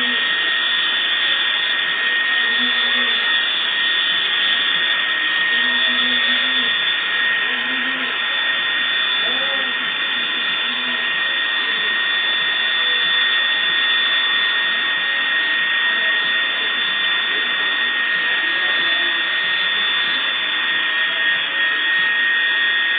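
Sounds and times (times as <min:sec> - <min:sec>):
helicopter turbine engine running: 0:00.0 - 0:22.9.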